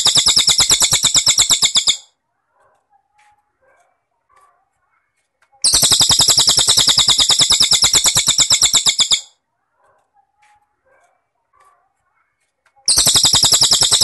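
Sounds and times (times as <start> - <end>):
shrill rapid insect trill: 0.0 - 2.0, 5.7 - 9.3, 12.9 - 14.0
bird chirps: 0.0 - 2.1, 5.6 - 9.3, 12.9 - 14.0.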